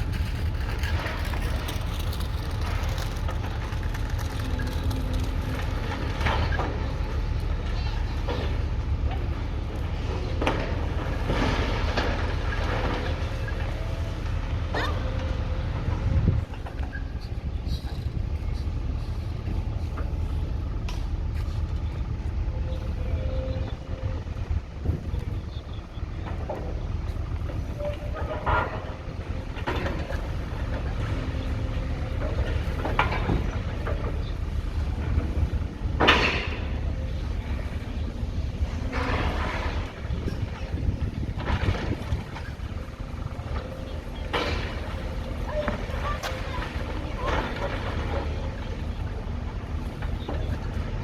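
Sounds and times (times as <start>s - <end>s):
debris clanking and crashing: 0.0s - 17.1s, 23.2s - 51.0s
demolition machinery engine rumble: 0.0s - 51.0s.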